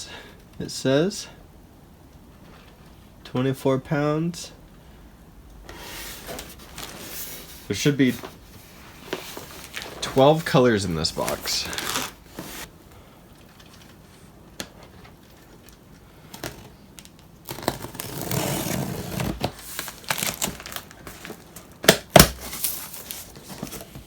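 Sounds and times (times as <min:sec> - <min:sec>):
packaging rustling: 0:05.8 - 0:12.7, 0:13.4 - 0:24.0.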